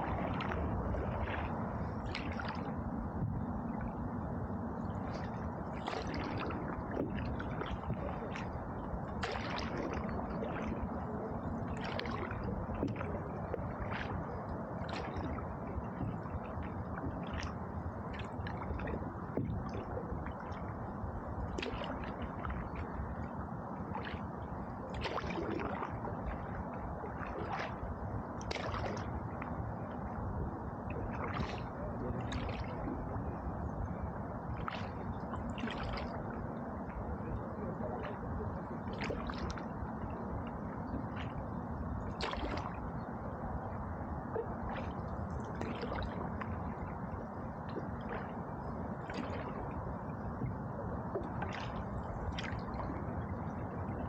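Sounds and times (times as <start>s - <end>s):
canoe paddle splashing in water: 0.0s - 2.7s, 5.1s - 8.6s, 9.2s - 10.9s, 11.6s - 14.2s, 14.8s - 16.2s, 24.9s - 26.4s, 28.4s - 29.1s, 31.0s - 32.9s, 34.5s - 36.2s, 38.8s - 39.7s, 42.1s - 42.8s, 44.4s - 46.6s, 49.0s - 49.7s, 51.1s - 52.9s.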